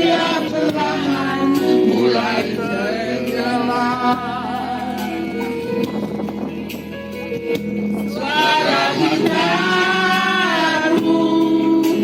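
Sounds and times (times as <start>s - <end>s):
man singing slow song: 0.0s - 5.1s, 8.1s - 12.0s
backing music: 0.0s - 12.0s.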